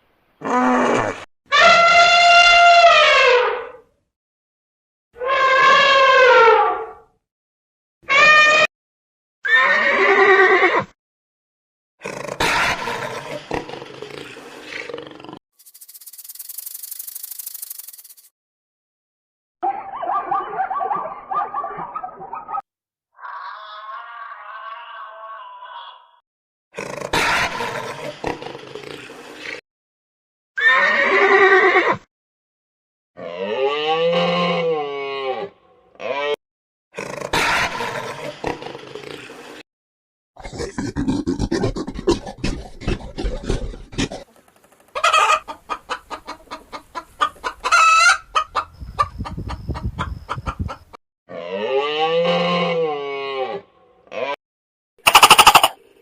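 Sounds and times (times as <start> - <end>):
horse whinny: 9.4 - 10.9, 30.6 - 32.0
rough noisy animal call: 23.2 - 26.2
chicken squawks: 37.3 - 38.3, 45.0 - 50.8, 55.1 - 55.8
chickens clucking: 40.9 - 50.9, 55.1 - 55.8
long rising and falling animal call: 55.1 - 55.8.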